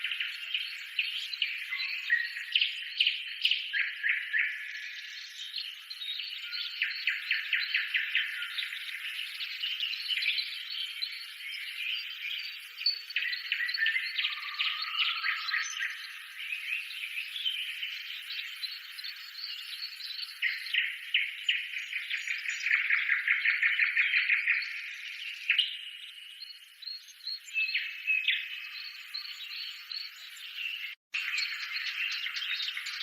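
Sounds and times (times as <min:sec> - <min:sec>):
small birds chirping and twittering: 0:00.0 - 0:33.0.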